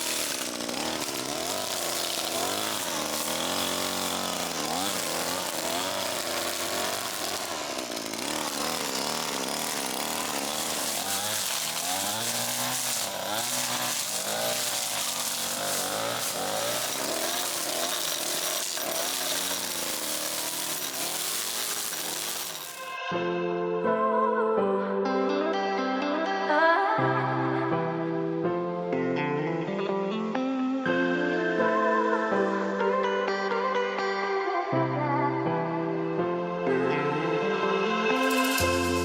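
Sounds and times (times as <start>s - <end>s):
small gas engine revving: 0.0s - 23.0s, 38.2s - 39.0s.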